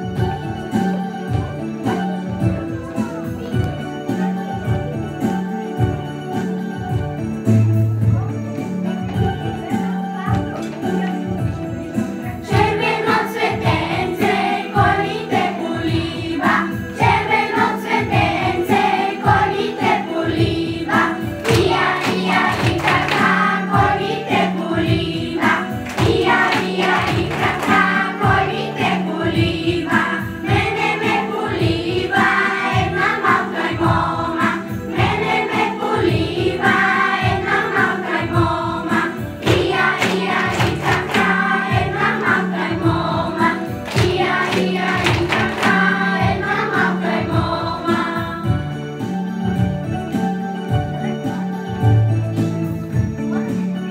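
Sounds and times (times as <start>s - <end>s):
folk music group singing: 12.3s - 49.1s.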